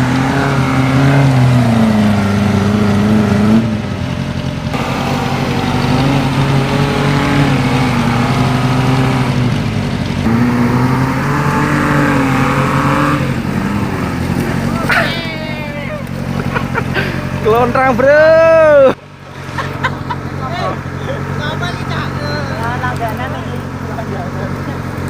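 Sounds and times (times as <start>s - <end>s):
off-road vehicle engine revving: 0.0s - 25.0s.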